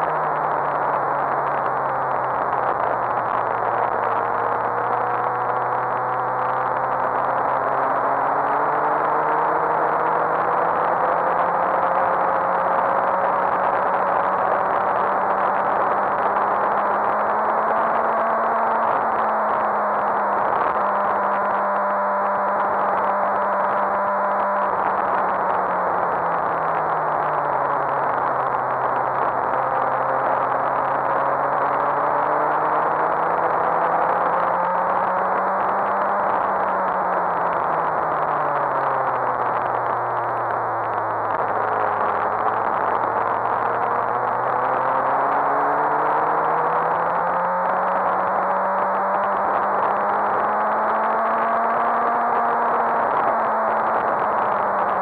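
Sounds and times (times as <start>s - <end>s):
motorcycle engine running at speed: 0.0s - 55.0s.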